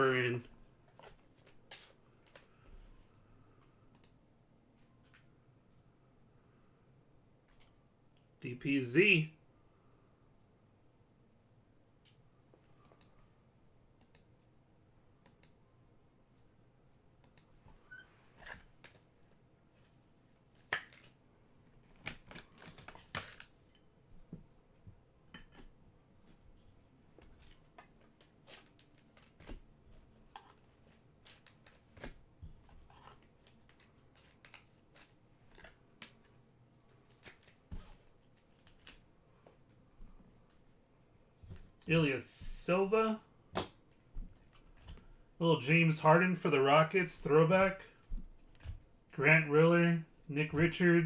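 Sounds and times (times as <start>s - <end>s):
cards being handled: 0.9s - 2.6s, 19.8s - 21.2s, 21.8s - 23.6s, 27.2s - 39.6s
card packs crinkling: 21.9s - 23.6s, 32.8s - 39.0s.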